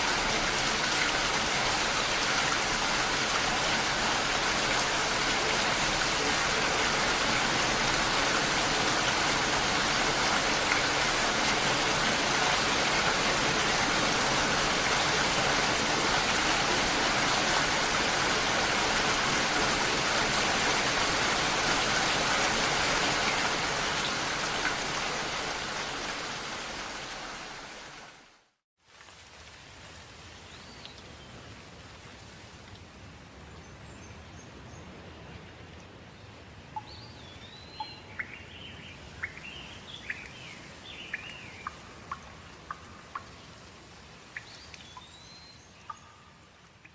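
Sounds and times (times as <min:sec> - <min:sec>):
steady dense rainfall: 0:00.0 - 0:46.9.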